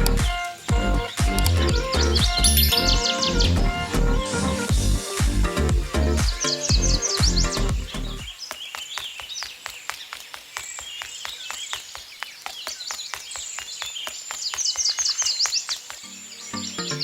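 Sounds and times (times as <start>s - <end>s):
music: 0.0s - 8.3s, 16.1s - 17.0s
birds chirping: 0.0s - 17.0s.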